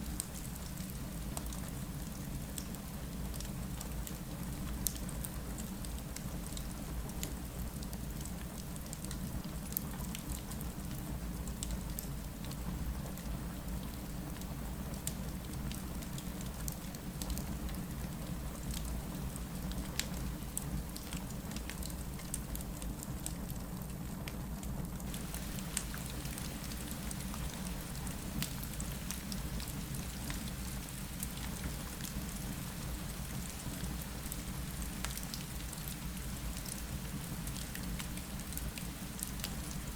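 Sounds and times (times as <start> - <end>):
rain falling against window: 0.1 - 23.6, 25.0 - 39.9
fireplace crackling: 25.1 - 39.9.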